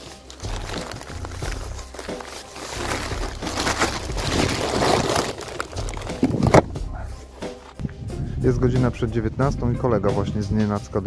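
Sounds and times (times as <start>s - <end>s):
rubbish bag crinkling: 0.0s - 7.8s.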